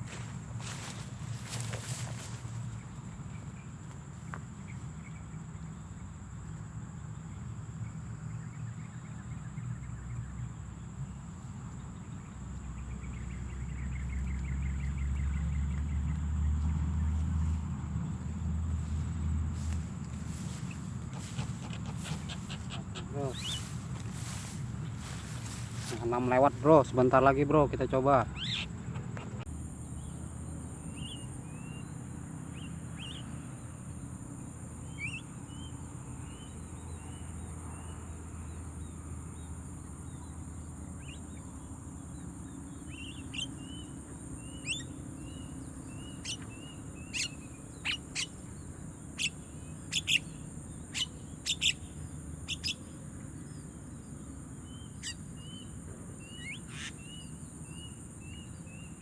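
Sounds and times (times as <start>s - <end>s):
birds chirping: 0.0s - 30.1s, 34.8s - 37.8s, 41.0s - 59.0s
sharp bird calls: 12.0s - 29.4s, 34.9s - 35.7s, 42.7s - 53.6s, 54.6s - 59.0s.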